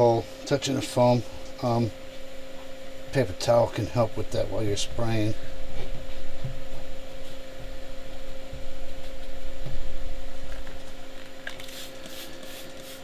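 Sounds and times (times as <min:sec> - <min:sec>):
steady hum and low rumble: 0:00.0 - 0:12.8
spray bottle squirting: 0:11.5 - 0:13.0.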